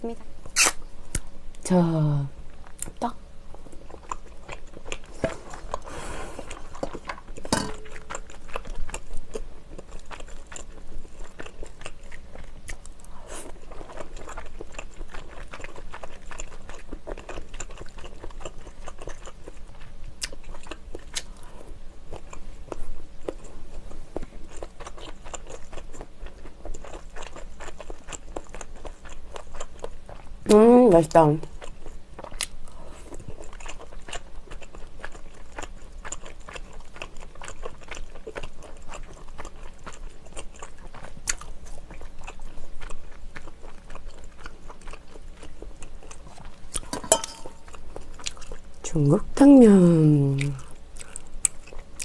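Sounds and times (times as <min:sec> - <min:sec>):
wet chewing and smacking: 0:02.6 - 0:30.6, 0:31.4 - 0:49.0, 0:49.8 - 0:52.0.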